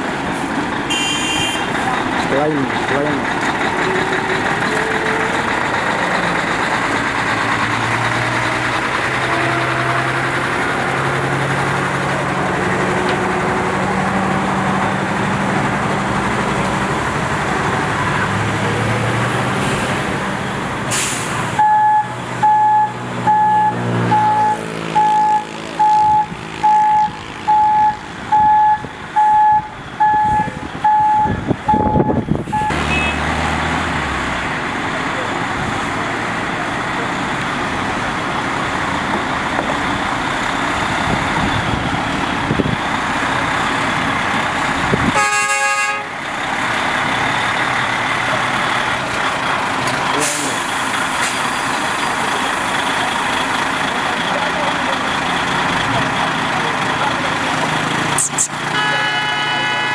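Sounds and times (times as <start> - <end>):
truck engine running: 0.0 - 59.5
air brakes hissing: 20.9 - 21.6, 50.2 - 54.1
reversing alarm beeping: 21.6 - 33.2.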